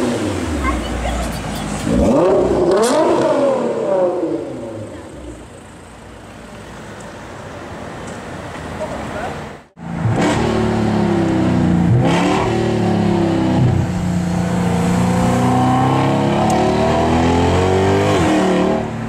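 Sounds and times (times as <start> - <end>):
car engine accelerating hard: 0.0 - 5.5, 9.8 - 19.0.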